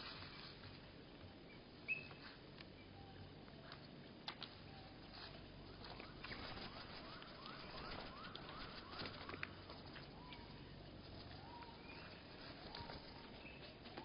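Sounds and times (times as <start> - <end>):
slowed bird calls: 5.8 - 14.0.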